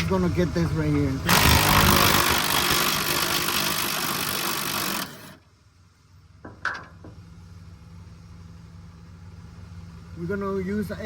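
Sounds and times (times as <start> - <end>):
power tool rattling: 1.3 - 5.4.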